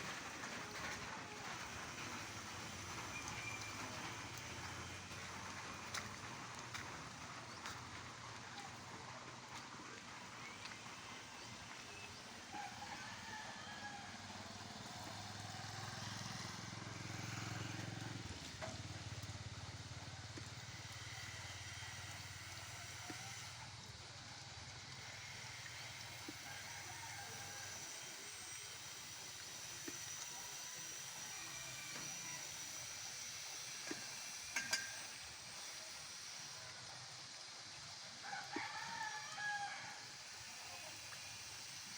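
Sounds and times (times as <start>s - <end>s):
falling rain hiss: 19.2s - 41.9s.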